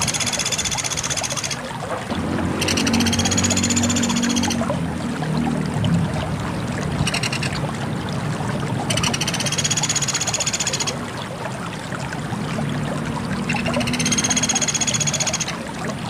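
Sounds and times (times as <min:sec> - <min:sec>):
woodpecker buzzy trills: 0:02.6 - 0:04.6, 0:13.5 - 0:15.6.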